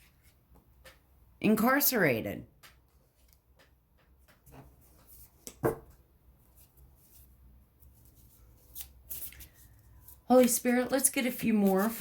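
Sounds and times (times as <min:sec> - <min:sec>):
cards rustling and tapping: 0:07.8 - 0:12.0.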